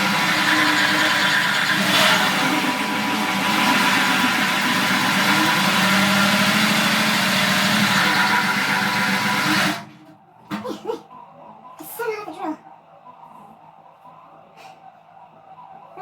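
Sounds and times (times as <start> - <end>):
saw teeth grinding on metal: 0.0 - 9.8
power drill motor whine: 0.0 - 10.0.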